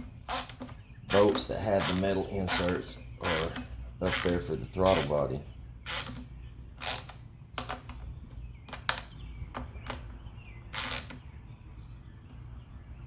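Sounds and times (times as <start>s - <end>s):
steady low hum: 0.0s - 13.0s
sharp metal clicks and knocks: 6.9s - 10.2s.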